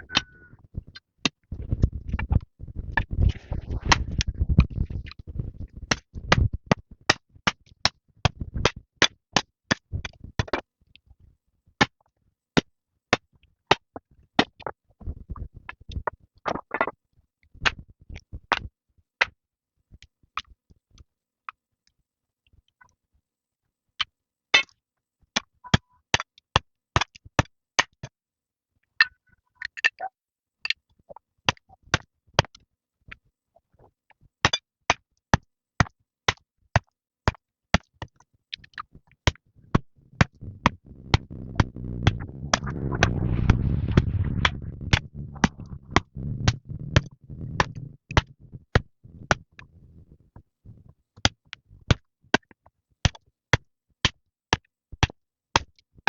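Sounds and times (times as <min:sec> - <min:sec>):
low rumble: 0:02.8 - 0:05.5, 0:39.6 - 0:49.4.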